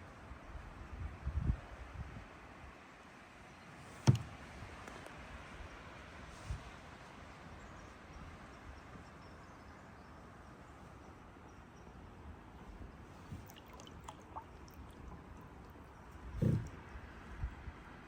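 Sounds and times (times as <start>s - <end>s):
light knocks: 4.0s - 5.0s
faint water wash: 12.6s - 18.0s
water drips: 13.2s - 17.1s.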